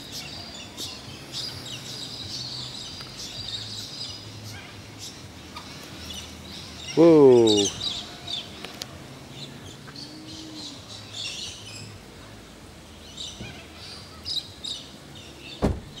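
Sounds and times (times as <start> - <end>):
bird chirps and calls: 0.0 - 12.0, 12.9 - 16.0
dull thump: 15.6 - 16.0.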